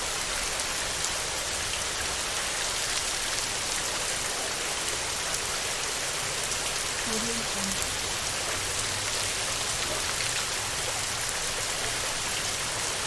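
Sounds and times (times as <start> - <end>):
heavy rain on a metal roof: 0.0 - 13.0.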